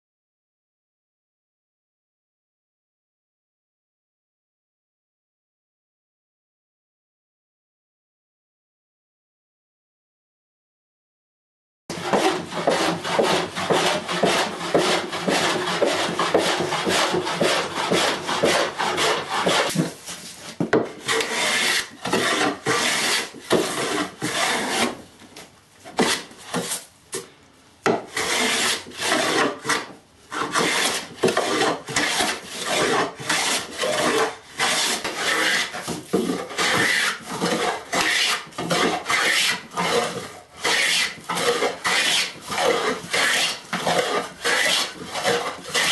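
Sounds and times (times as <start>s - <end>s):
hand tool scraping wood: 11.9s - 25.0s, 25.8s - 27.3s, 27.9s - 45.9s.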